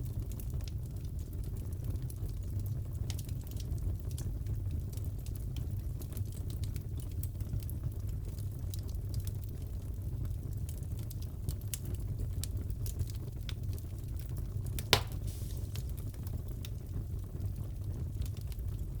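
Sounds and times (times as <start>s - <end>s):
wood fire crackling: 0.0s - 19.0s
loud fire pop: 14.8s - 16.2s.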